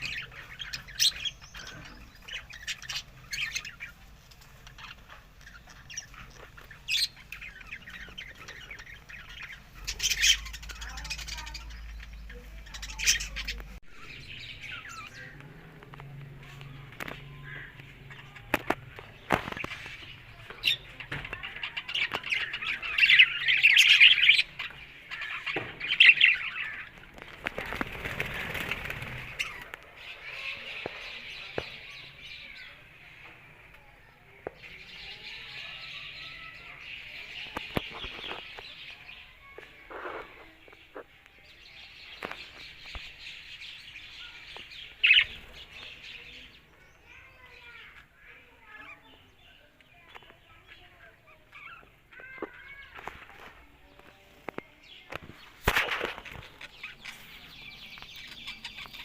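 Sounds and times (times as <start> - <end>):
budgerigars chattering and warbling: 0.0 - 15.4, 17.4 - 32.6, 41.9 - 47.1, 55.7 - 59.0.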